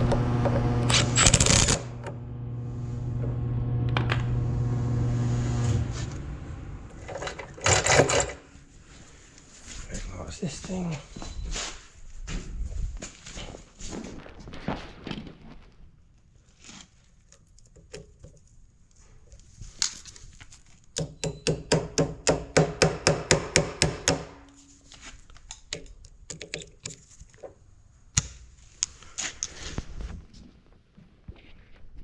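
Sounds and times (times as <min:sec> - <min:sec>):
clunks of tools and parts: 0:00.0 - 0:08.7, 0:20.9 - 0:29.5.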